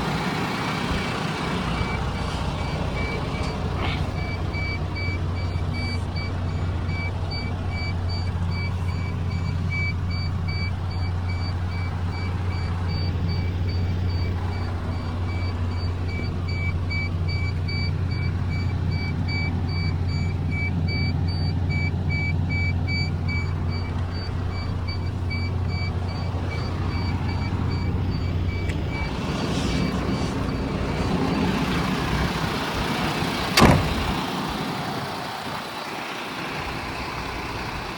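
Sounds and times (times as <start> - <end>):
diesel truck engine running: 0.0 - 37.9
sharp bang: 33.6 - 34.2.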